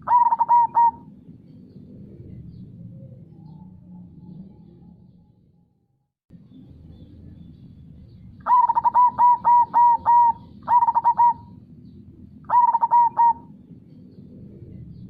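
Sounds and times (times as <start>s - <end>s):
dove cooing: 0.0s - 1.3s, 8.4s - 11.6s, 12.5s - 13.7s.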